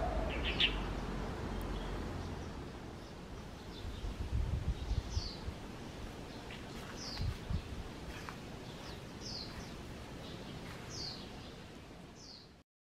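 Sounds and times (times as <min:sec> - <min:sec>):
bird calling: 0:00.0 - 0:00.9
steady outdoor hiss: 0:00.0 - 0:12.6.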